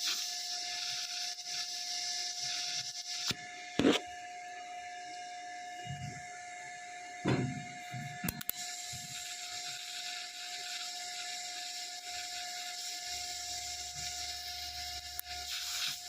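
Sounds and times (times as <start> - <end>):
welding arc hissing: 0.0 - 4.2, 7.2 - 16.0
constant high machine tone: 0.0 - 16.0
welder click: 8.2 - 8.6.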